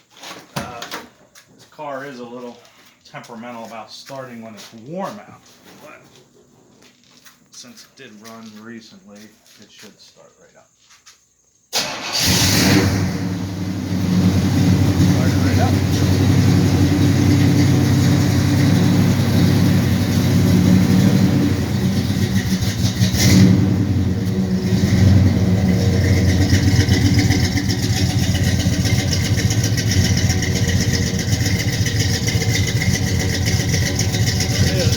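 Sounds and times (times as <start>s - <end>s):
car engine idling: 11.8s - 34.9s
loud engine burst: 11.8s - 34.9s
fast light engine ticking: 13.3s - 34.9s.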